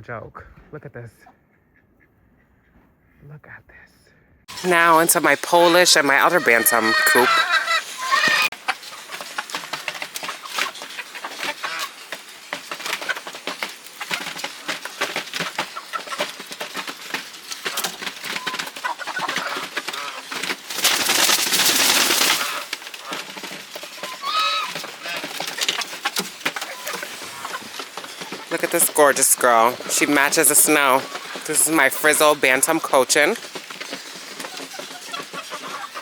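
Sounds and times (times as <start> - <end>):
chickens clucking: 4.6 - 16.9, 17.6 - 36.0
chickens scratching: 5.6 - 36.0
chicken squawk: 6.7 - 8.5, 24.0 - 25.2.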